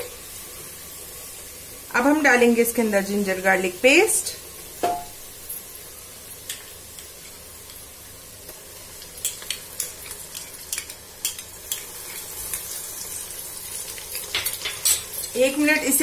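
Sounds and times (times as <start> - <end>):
onions sizzling in hot oil: 0.0 - 16.0
spoon tapping a pot: 4.8 - 5.1.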